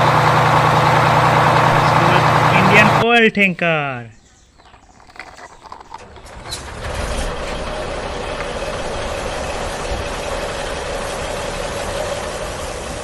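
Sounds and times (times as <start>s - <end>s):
toy truck whirring: 4.7s - 10.0s.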